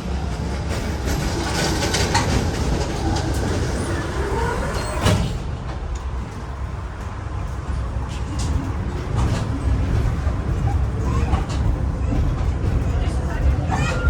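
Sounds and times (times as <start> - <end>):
tram wheel squeal: 0.0 - 5.4, 10.6 - 14.0
tram rumbling on rails: 0.0 - 14.0.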